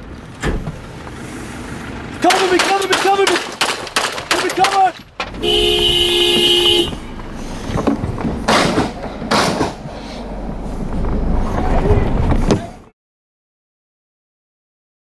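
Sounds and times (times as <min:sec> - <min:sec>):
vehicle horn: 0:05.4 - 0:07.2.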